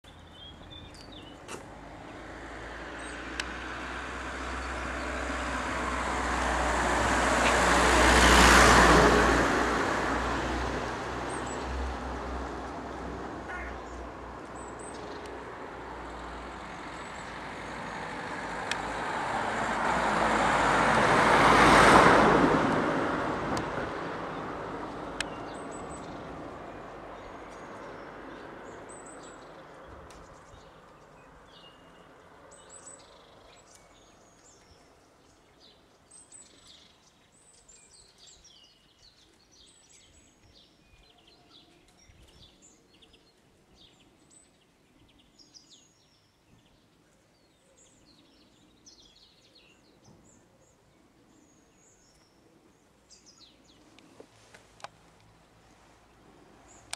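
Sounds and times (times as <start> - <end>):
small birds chirping: 0.0 - 5.5, 11.2 - 19.0, 24.8 - 56.9
road traffic noise: 0.0 - 40.9, 47.4 - 56.9.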